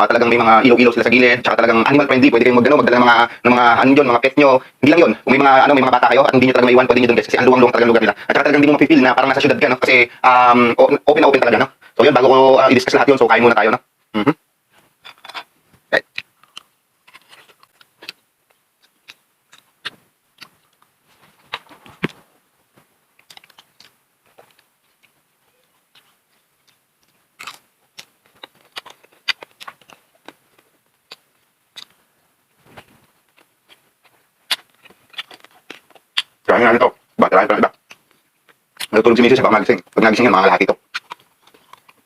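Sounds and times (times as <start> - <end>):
crunching and chewing: 14.8 - 36.8, 37.4 - 39.1, 40.1 - 42.0
wet mouth clicks: 16.0 - 18.2, 31.1 - 32.0, 34.5 - 36.4.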